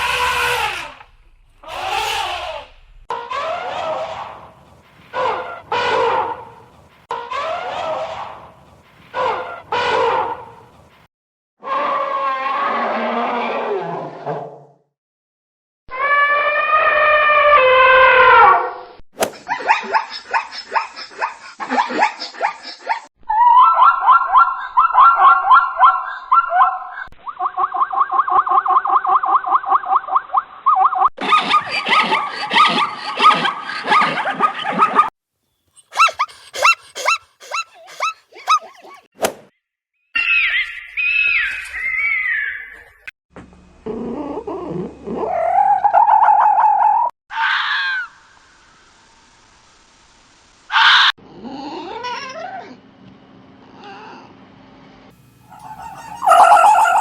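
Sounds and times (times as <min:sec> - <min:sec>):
animal wavering cry: 0:01.6 - 0:04.3, 0:15.9 - 0:18.7, 0:35.8 - 0:39.1, 0:43.8 - 0:48.1, 0:55.5 - 0:57.0
animal yelping: 0:01.6 - 0:04.3, 0:19.5 - 0:29.3, 0:30.7 - 0:35.1, 0:35.8 - 0:39.1, 0:43.9 - 0:48.1, 0:55.5 - 0:57.0
short high animal call: 0:55.5 - 0:57.0.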